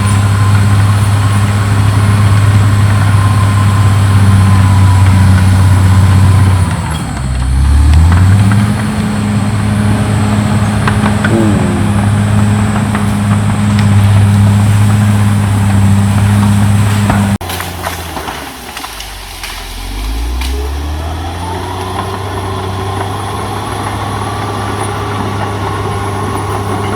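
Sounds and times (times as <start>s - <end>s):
bulldozer diesel engine running: 0.0s - 26.9s.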